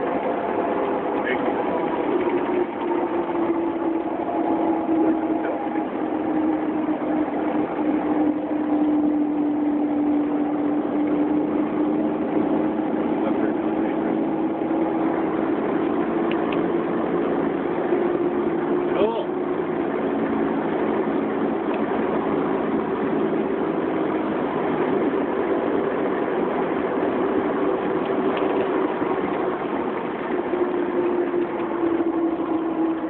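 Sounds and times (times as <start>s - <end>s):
aircraft engine and propeller droning: 0.0s - 33.0s.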